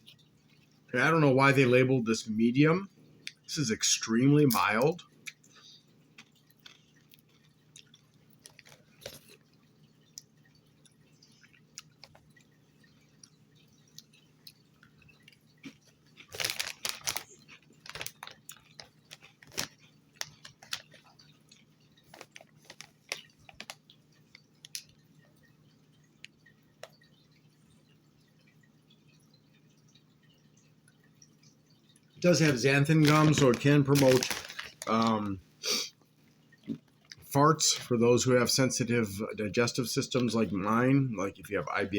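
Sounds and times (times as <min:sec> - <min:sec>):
person chewing crunchy chips: 0:04.6 - 0:25.0, 0:32.2 - 0:35.9.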